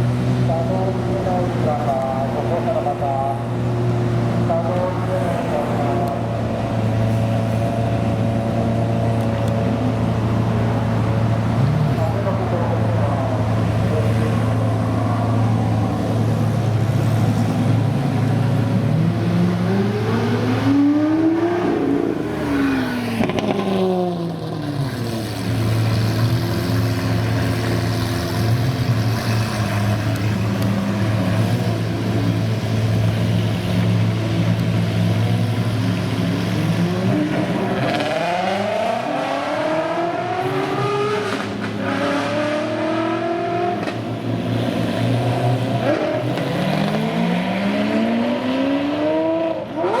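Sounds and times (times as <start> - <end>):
sports car revving past: 13.6 - 50.0.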